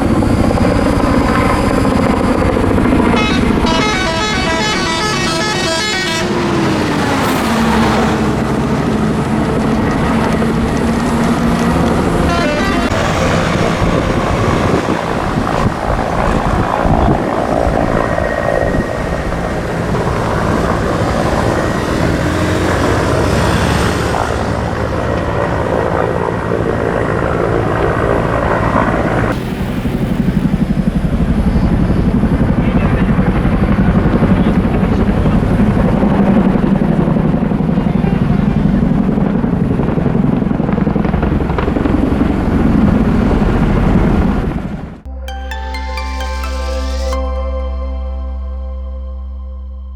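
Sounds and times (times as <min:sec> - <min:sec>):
vehicle engines running: 0:00.0 - 0:44.9
vehicle horn: 0:03.0 - 0:06.9, 0:12.1 - 0:13.9.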